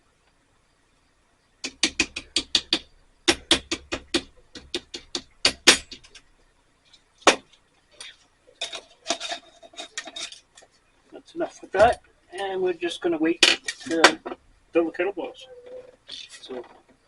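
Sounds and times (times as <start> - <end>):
rapid light tapping: 1.6 - 6.3.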